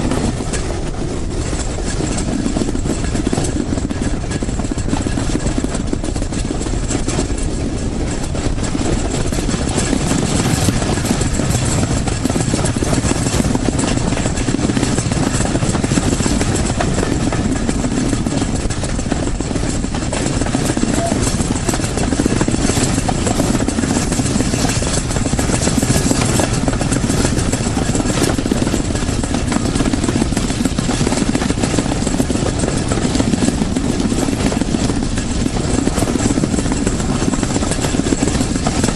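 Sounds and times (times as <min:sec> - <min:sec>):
train rumbling: 0:00.0 - 0:38.9.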